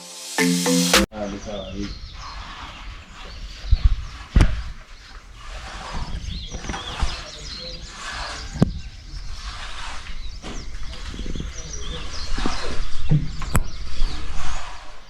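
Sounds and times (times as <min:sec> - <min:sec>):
birds chirping and calling: 0:00.6 - 0:15.0.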